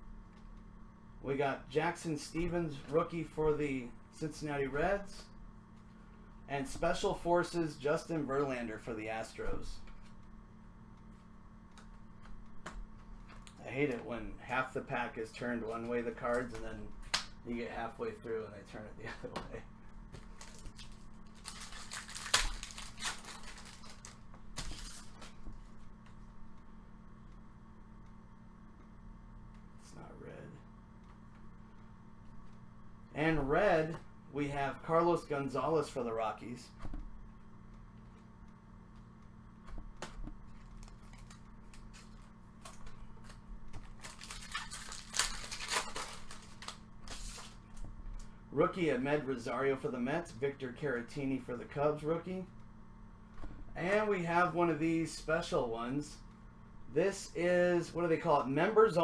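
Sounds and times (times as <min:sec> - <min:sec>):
cards flicking and slapping: 0:20.1 - 0:25.4
wrapper rustling and crinkling: 0:20.2 - 0:25.5, 0:40.5 - 0:47.7.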